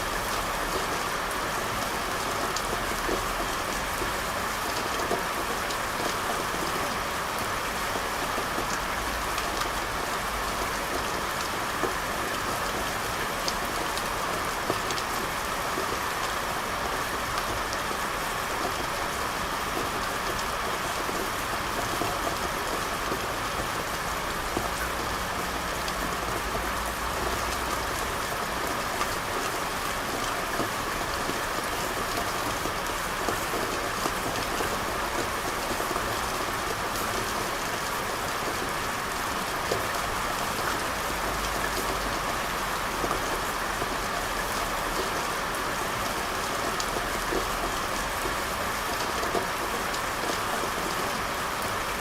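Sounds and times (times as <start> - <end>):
rain falling on street: 0.0 - 52.0.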